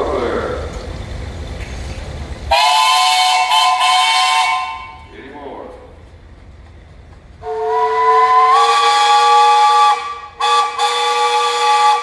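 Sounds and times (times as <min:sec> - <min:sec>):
steam whistle blowing: 0:02.5 - 0:05.0, 0:07.4 - 0:12.0.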